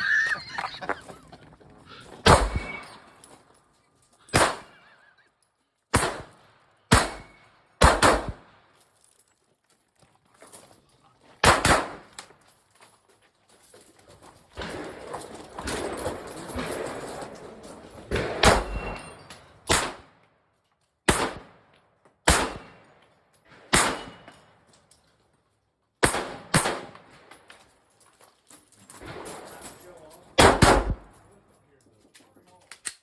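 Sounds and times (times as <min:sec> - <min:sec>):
gunshots: 0:02.2 - 0:03.1, 0:04.3 - 0:04.8, 0:05.9 - 0:08.5, 0:11.4 - 0:12.2, 0:18.1 - 0:20.1, 0:21.1 - 0:21.6, 0:22.2 - 0:22.9, 0:23.6 - 0:24.3, 0:26.0 - 0:27.2, 0:30.4 - 0:31.2.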